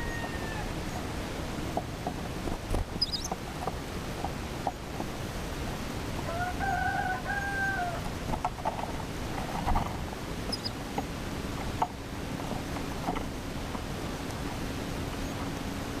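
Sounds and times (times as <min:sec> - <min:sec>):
chicken crowing: 0:00.0 - 0:01.0, 0:06.2 - 0:08.1
low wind rumble: 0:00.0 - 0:16.0.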